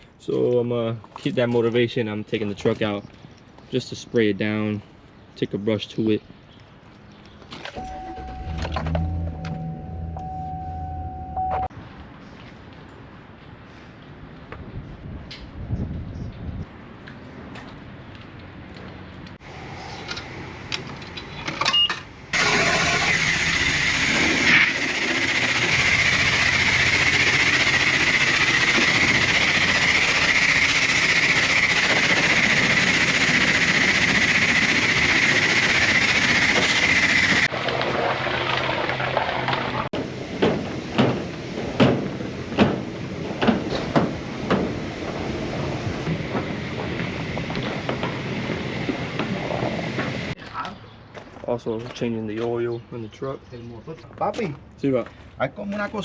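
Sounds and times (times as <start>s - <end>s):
pressure washer spraying: 22.4s - 37.5s.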